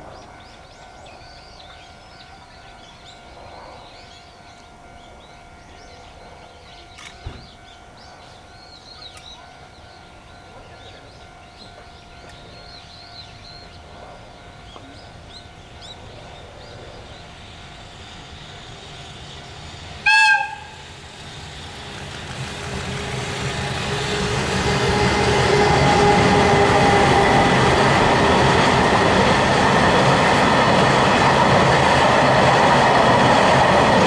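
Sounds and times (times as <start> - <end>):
freight train running: 0.0 - 34.0
small birds chirping: 0.1 - 20.0
locomotive whistle blast: 20.0 - 20.9.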